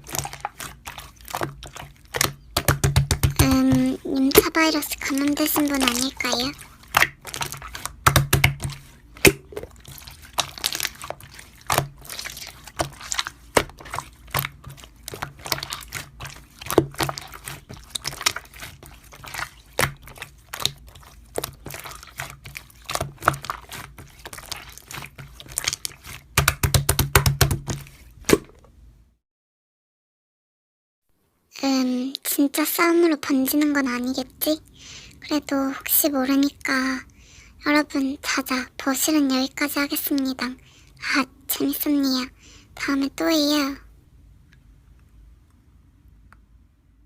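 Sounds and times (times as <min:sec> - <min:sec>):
slime squished by hand: 0:00.0 - 0:28.6.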